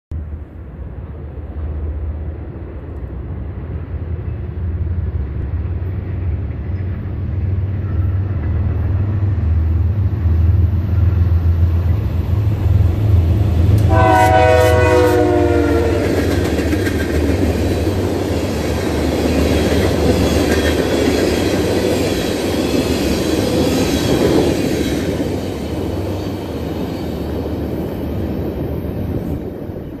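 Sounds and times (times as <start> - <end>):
train wheels clattering on rails: 5.4 - 30.0
locomotive horn: 13.8 - 16.5.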